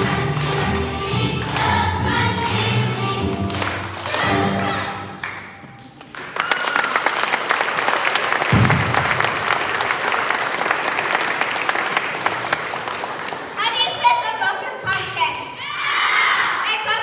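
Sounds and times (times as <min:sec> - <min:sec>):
children singing: 0:00.0 - 0:05.4
audience applause: 0:06.0 - 0:13.6.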